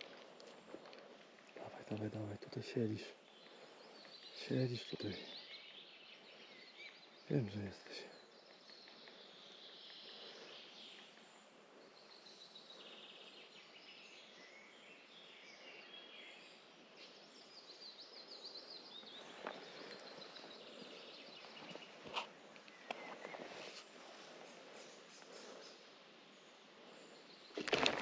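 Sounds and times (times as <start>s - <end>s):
faint outdoor hiss: 0.0s - 28.0s
songbirds trilling chirps: 0.0s - 28.0s.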